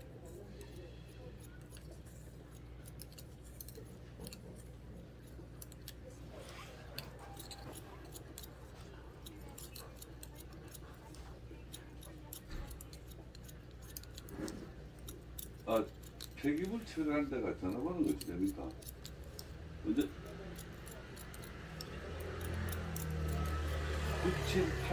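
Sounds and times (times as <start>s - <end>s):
scissors snipping hair: 0.0s - 24.9s.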